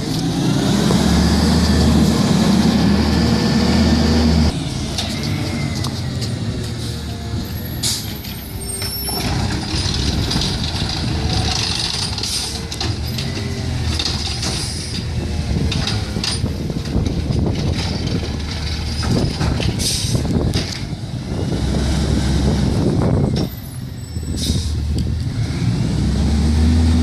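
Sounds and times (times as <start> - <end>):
diesel engine running: 0.0 - 27.0
air brake hisses: 19.8 - 20.2, 24.3 - 24.8.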